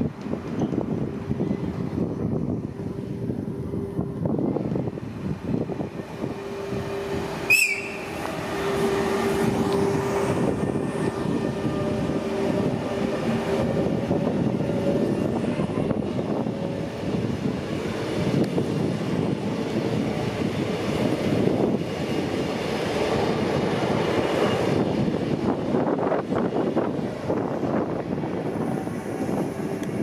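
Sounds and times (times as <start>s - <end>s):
train hum: 0.0s - 30.0s
train wheels rumbling on rails: 0.0s - 30.0s
high-pitched squeal: 7.5s - 9.4s.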